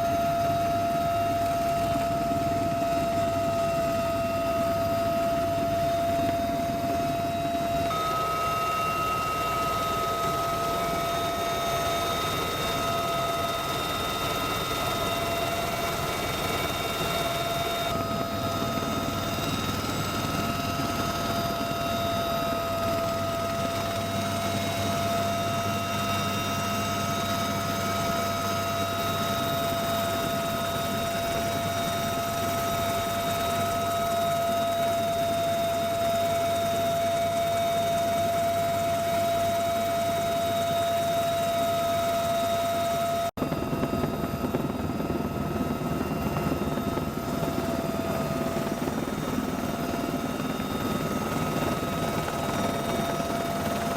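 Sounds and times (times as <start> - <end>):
helicopter turbine and rotor whine: 0.0 - 53.9.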